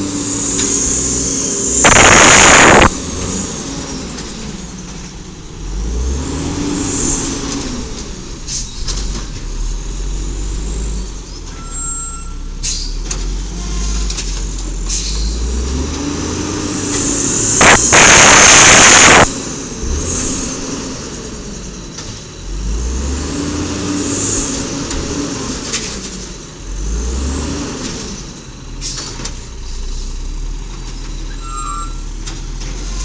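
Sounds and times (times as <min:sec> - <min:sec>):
truck engine rumbling: 0:00.0 - 0:33.0
air brakes hissing: 0:12.6 - 0:13.0, 0:14.8 - 0:15.3.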